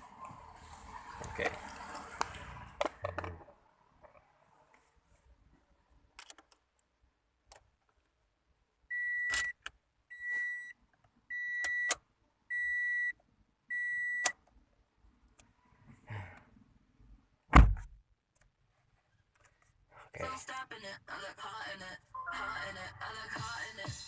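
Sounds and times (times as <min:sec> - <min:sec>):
car warning beeps: 0:08.9 - 0:14.4, 0:22.1 - 0:23.0.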